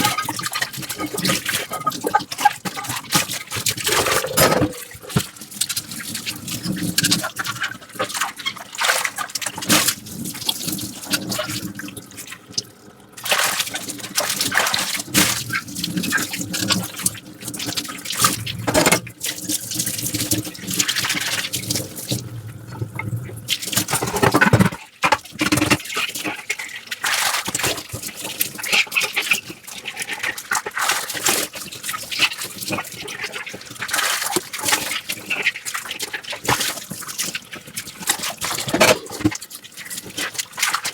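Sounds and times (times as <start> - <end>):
sponge scrubbing dishes: 3.7 - 5.3, 17.6 - 26.2
dishes clinking: 3.9 - 5.0.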